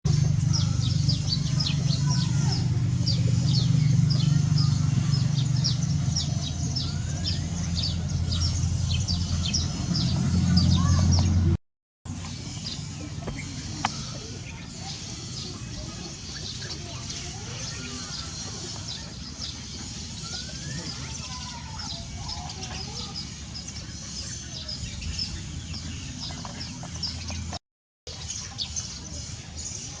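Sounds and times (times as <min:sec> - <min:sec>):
small birds chirping: 0:00.0 - 0:30.0
lower gliding bird calls: 0:12.2 - 0:26.6.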